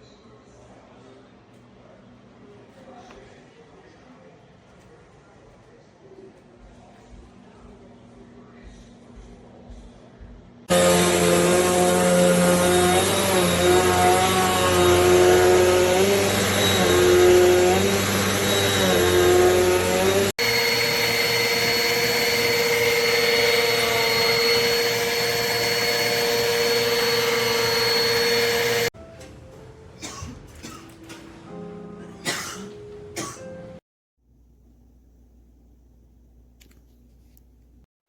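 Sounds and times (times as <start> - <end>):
vacuum cleaner running: 10.6 - 29.0.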